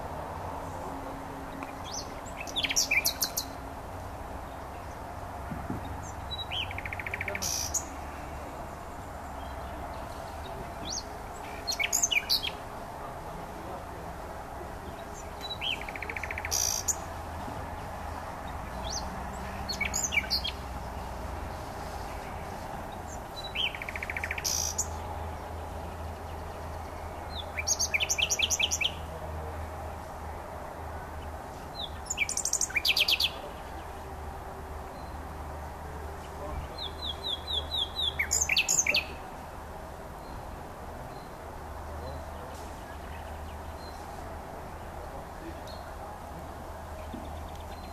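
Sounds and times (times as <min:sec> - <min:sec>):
nightingale singing: 0:00.0 - 0:03.7, 0:05.8 - 0:12.8, 0:14.8 - 0:21.1, 0:21.8 - 0:29.2, 0:31.2 - 0:34.1, 0:36.4 - 0:39.3.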